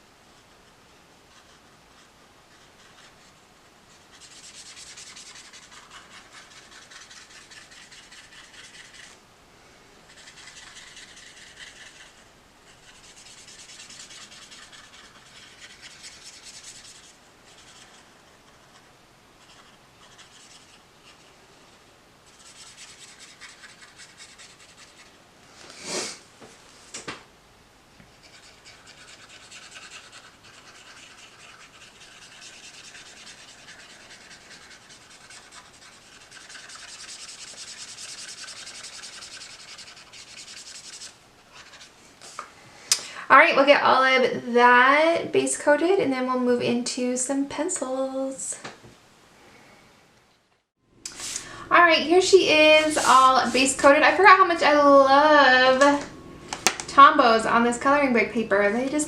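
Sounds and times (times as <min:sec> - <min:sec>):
marker rubbing on paper: 0:01.3 - 0:09.2, 0:10.1 - 0:21.3, 0:22.3 - 0:25.2, 0:28.1 - 0:42.4, 0:52.0 - 0:54.8.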